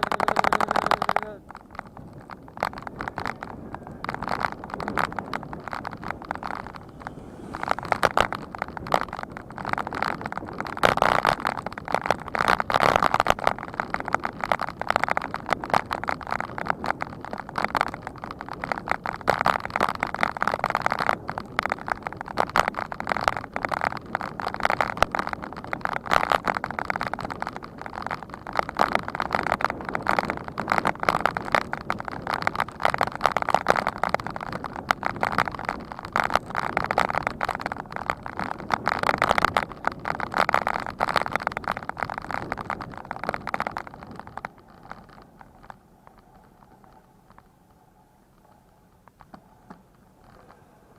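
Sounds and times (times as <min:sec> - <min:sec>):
wind rushing: 0:00.0 - 0:10.8
road rattle on camera: 0:00.0 - 0:50.9.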